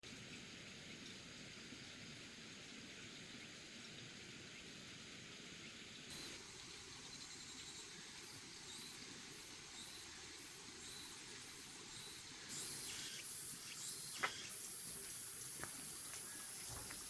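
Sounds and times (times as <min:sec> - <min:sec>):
steady high hiss: 0:05.6 - 0:17.0
insects chirping: 0:06.1 - 0:17.0.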